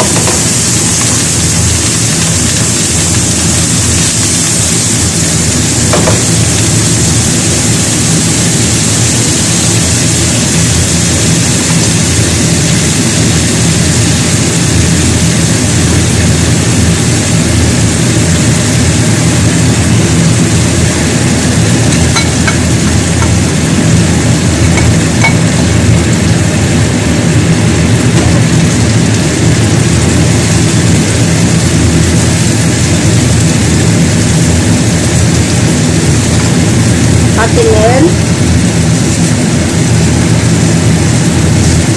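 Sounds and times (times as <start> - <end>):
hiss: 0.0 - 25.4
appliance motor hum: 0.0 - 41.9.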